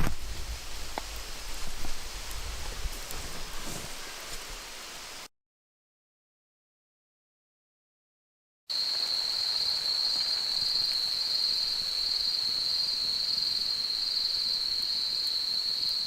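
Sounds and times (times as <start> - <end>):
insects trilling: 8.7 - 16.0.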